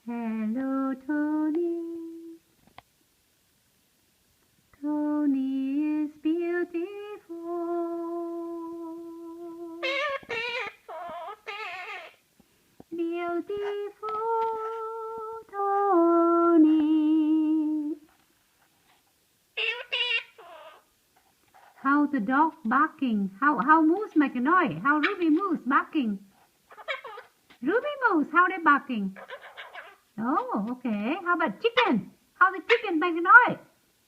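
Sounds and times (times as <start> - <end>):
person humming a slow tune: 0.0 - 2.4, 4.8 - 9.9, 12.9 - 18.1.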